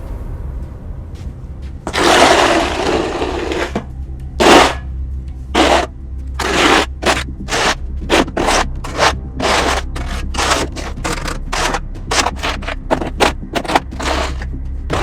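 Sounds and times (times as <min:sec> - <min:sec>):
snow shovel scraping pavement: 0:01.9 - 0:03.8, 0:04.4 - 0:04.8, 0:05.6 - 0:15.0.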